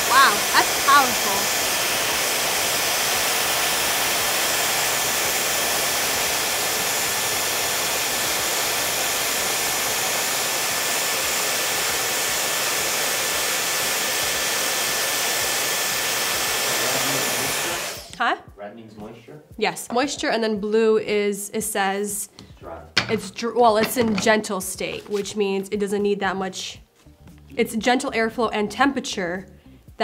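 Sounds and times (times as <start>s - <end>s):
hair dryer running: 0.0s - 18.2s, 23.8s - 24.2s.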